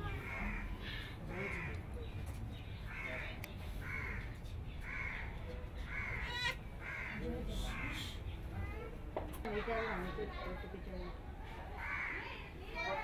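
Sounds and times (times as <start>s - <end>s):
bird cawing: 2.9s - 8.2s, 11.8s - 12.4s.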